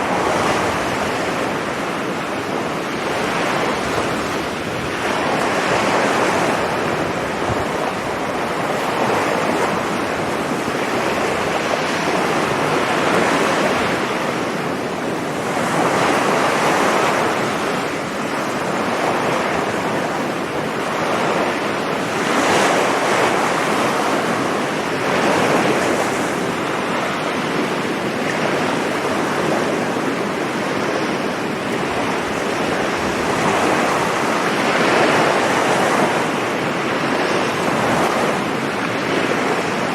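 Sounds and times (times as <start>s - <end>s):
sea surf breaking on beach: 0.0s - 39.9s
wind on microphone: 0.0s - 39.9s.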